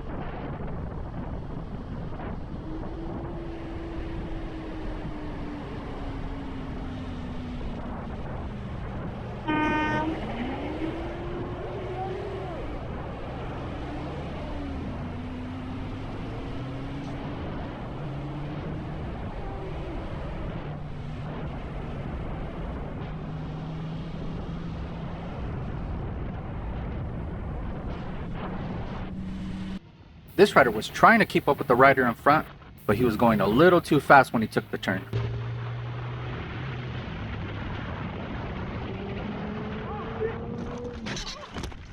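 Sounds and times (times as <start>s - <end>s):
wind and road noise: 0.0s - 41.9s
vehicle horn blast: 9.4s - 10.7s, 30.4s - 35.1s.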